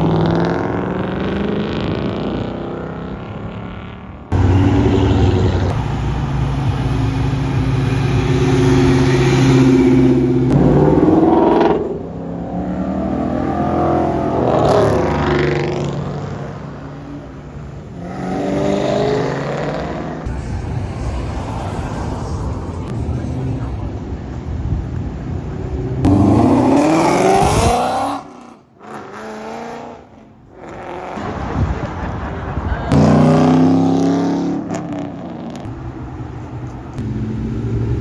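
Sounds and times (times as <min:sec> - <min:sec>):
car engine revving: 0:00.0 - 0:31.8, 0:32.9 - 0:38.0.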